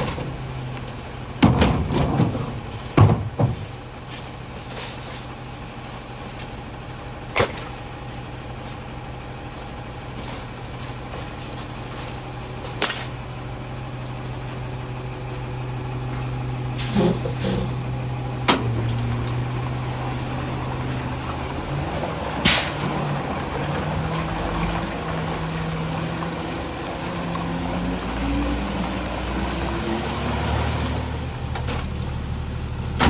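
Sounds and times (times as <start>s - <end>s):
garbage truck engine: 0.0s - 33.0s
short air hisses: 16.8s - 17.8s.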